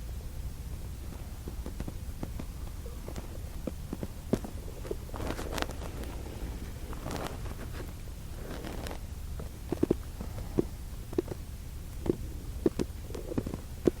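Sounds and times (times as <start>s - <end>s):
low steady room hum: 0.0s - 14.0s
small clicks and taps: 1.1s - 4.6s.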